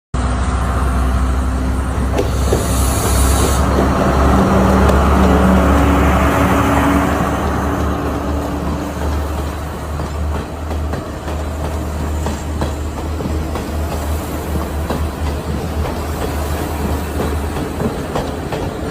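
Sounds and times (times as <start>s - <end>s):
train rumbling: 0.2s - 18.9s
brief hiss: 2.2s - 3.8s.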